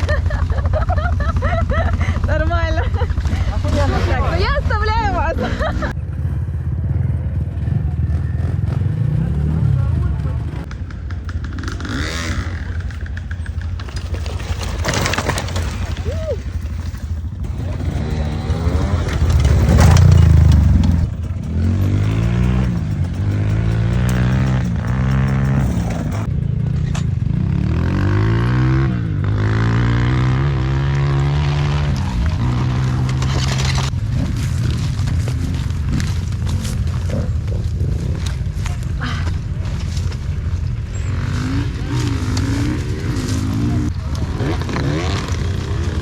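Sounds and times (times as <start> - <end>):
motorcycle engines revving: 0.0 - 46.0.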